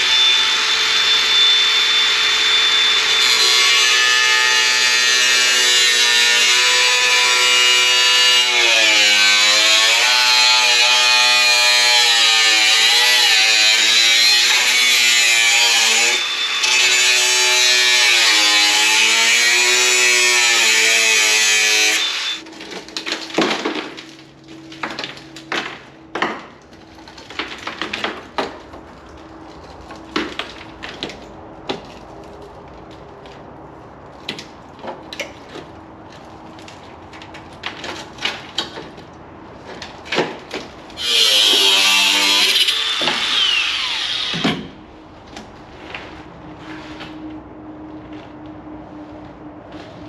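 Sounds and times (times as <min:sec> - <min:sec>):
power cutter slicing steel: 0:00.0 - 0:22.4, 0:41.0 - 0:44.7.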